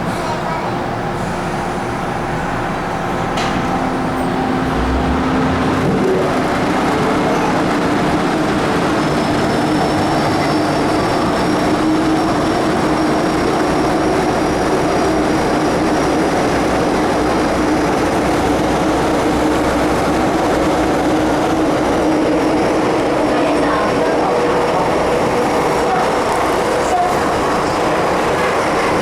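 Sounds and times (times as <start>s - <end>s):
train wheels rumbling in tunnel: 0.0s - 29.0s.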